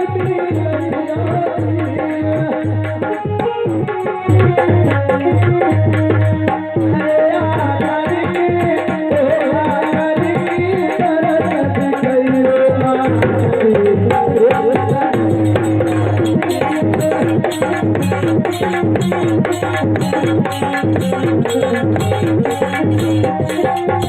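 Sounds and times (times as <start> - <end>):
tabla playing a rhythm: 0.0 - 24.0
devotional music melody: 2.6 - 7.7.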